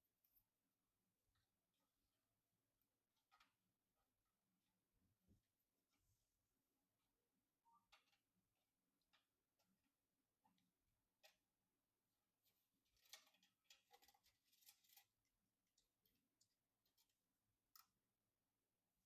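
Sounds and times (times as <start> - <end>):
small hardware clicking and scraping: 12.9 - 17.2.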